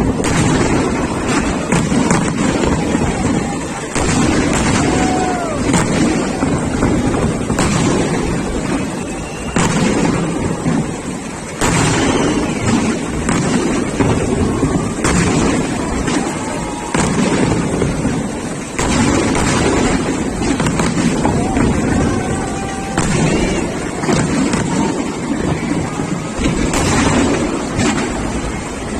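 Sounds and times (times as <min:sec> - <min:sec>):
firework bangs: 0:00.0 - 0:28.9
fireworks rumble and crackle: 0:00.0 - 0:28.9.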